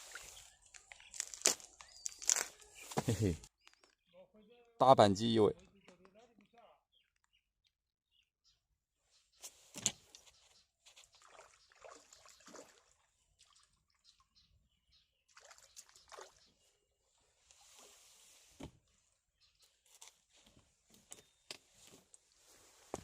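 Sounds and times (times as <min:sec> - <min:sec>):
water sloshing and splashing: 0:00.0 - 0:01.4, 0:10.9 - 0:14.5, 0:15.3 - 0:16.7.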